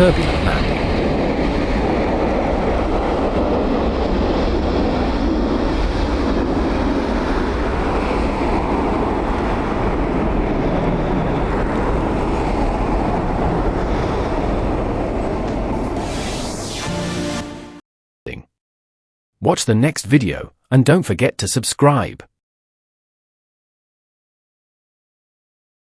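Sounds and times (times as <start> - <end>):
airliner roaring on landing: 0.0 - 16.7.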